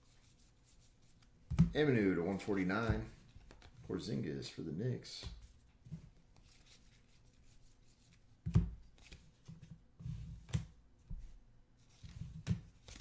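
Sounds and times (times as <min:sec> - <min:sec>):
cards sliding and shuffling: 0:02.6 - 0:03.8, 0:05.2 - 0:10.7, 0:11.8 - 0:13.0.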